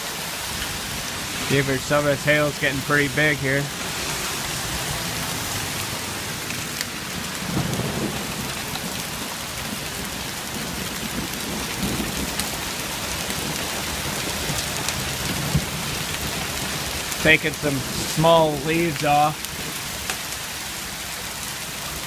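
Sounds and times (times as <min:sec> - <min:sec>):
hail and rain pelting: 0:00.0 - 0:22.0
rumble of thunder: 0:07.0 - 0:17.2.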